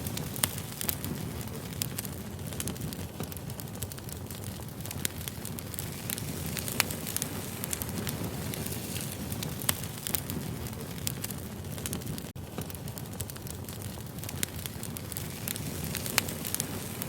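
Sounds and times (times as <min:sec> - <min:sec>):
fire crackles and pops: 0:00.0 - 0:17.0
wood fire rumbling: 0:00.0 - 0:17.0.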